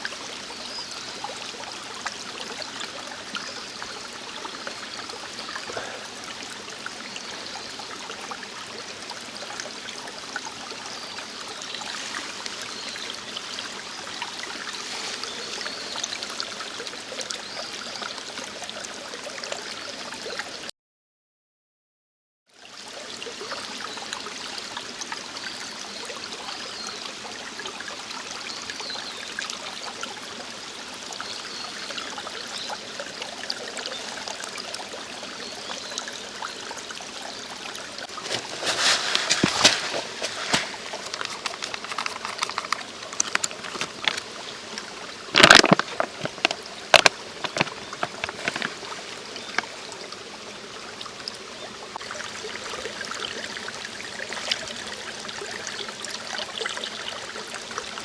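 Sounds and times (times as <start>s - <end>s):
stream rushing and trickling: 0.0s - 20.7s, 22.6s - 58.0s.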